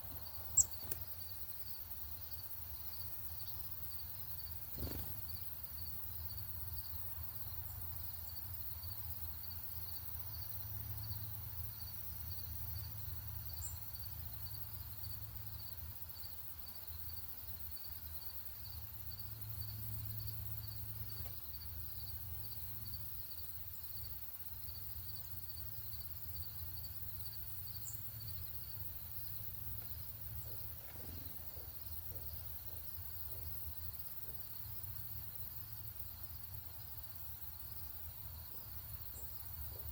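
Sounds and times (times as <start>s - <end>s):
insects chirping: 0.0s - 39.9s
constant low rumble: 26.6s - 39.9s.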